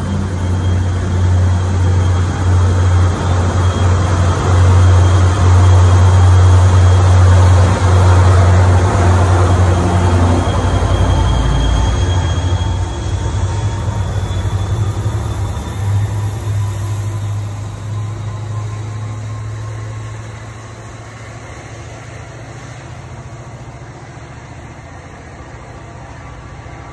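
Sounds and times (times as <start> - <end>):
diesel locomotive engine drone: 0.0 - 26.9
train wheel noise: 0.0 - 26.9.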